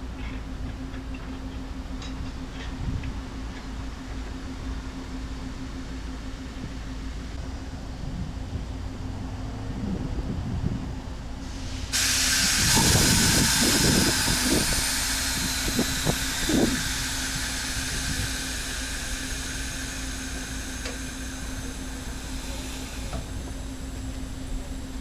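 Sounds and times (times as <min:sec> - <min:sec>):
compressed air hissing: 0:11.4 - 0:24.4
steady low hum: 0:12.5 - 0:25.0.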